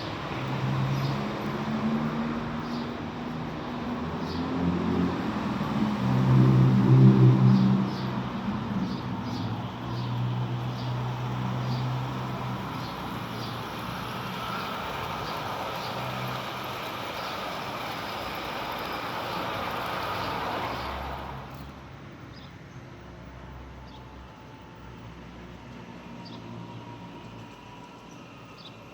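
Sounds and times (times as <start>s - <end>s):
model train running: 12.6s - 21.6s.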